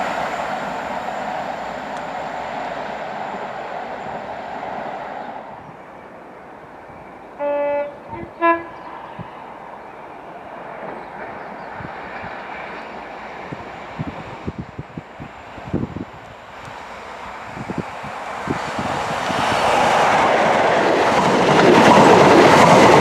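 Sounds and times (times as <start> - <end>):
train running past: 0.0 - 23.0
train horn two notes: 7.4 - 9.0.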